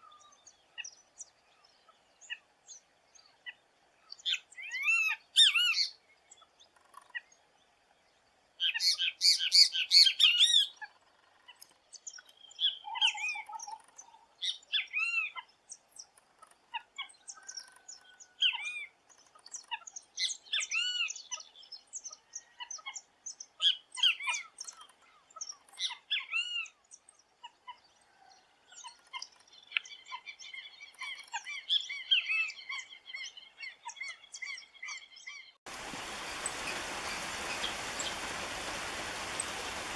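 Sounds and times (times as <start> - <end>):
bird calling arched notes: 35.7 - 39.9.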